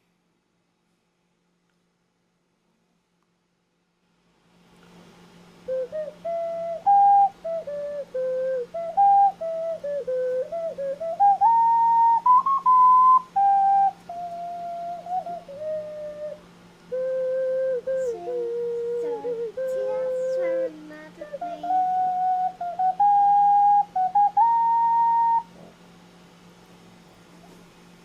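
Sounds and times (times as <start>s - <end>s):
steady low hum: 0.0s - 28.0s
ocarina playing slow melody: 5.6s - 25.7s.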